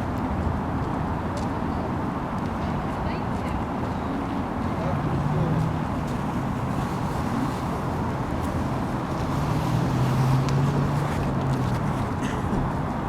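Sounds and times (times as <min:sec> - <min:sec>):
city street traffic: 0:00.0 - 0:13.0
low vehicle hum: 0:04.4 - 0:13.0.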